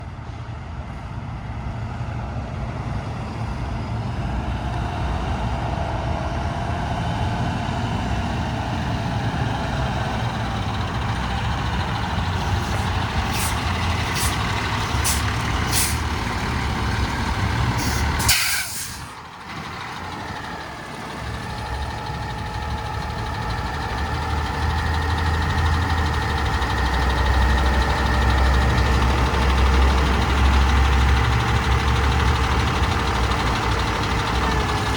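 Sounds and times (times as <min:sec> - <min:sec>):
diesel truck engine running: 0:00.0 - 0:34.9
air-brake hiss: 0:12.3 - 0:16.2, 0:17.7 - 0:19.2
short air hisses: 0:12.6 - 0:16.1, 0:17.8 - 0:19.2.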